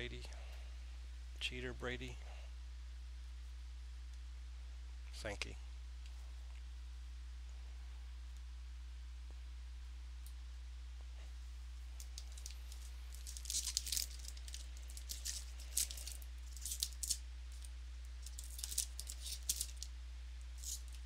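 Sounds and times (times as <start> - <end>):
low electrical hum: 0.0 - 21.0
cards and packaging crinkling: 12.0 - 19.9, 20.6 - 21.0.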